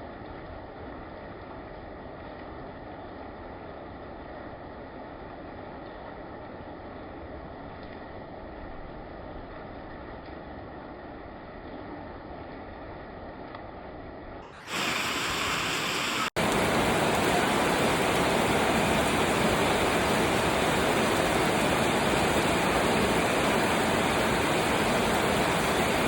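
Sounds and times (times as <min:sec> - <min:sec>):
heavy rain falling: 0:14.6 - 0:26.0.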